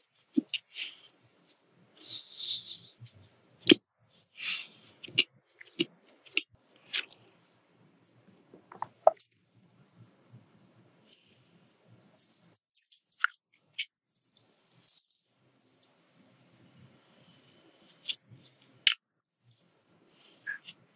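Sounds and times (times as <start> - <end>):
mouth clicks and smacks: 2.0 - 3.8, 4.7 - 7.3, 8.1 - 9.2.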